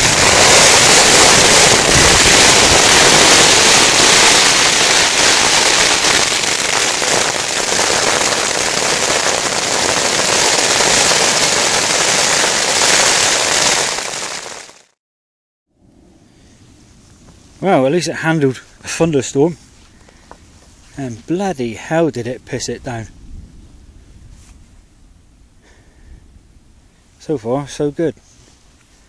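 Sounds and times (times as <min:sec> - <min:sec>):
heavy rain on a tarp: 0:00.0 - 0:15.0.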